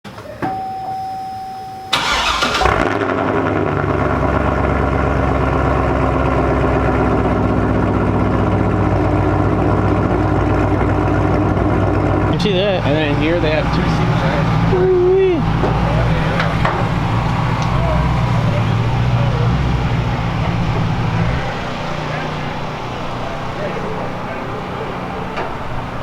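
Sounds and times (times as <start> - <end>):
single tone: 0.1 - 2.0
car engine starting and idling: 1.4 - 26.0.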